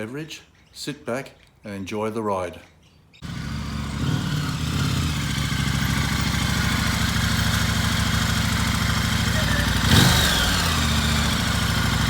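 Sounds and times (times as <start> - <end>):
motorcycle engine idling: 3.2 - 12.0.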